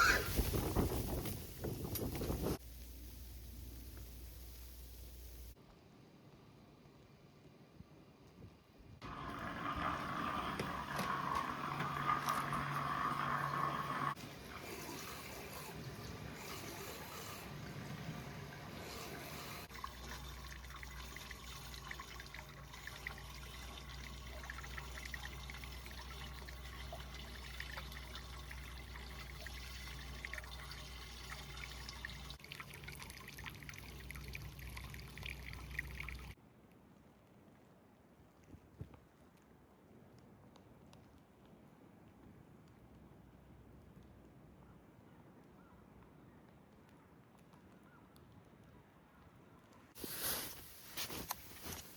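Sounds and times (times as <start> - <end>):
water pouring into a bath: 9.0 - 36.4.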